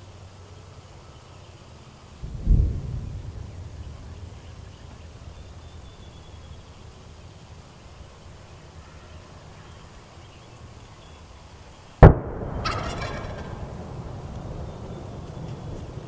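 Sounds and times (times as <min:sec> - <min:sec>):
loud bang: 0:12.0 - 0:14.4
turkey gobbling: 0:12.5 - 0:13.8.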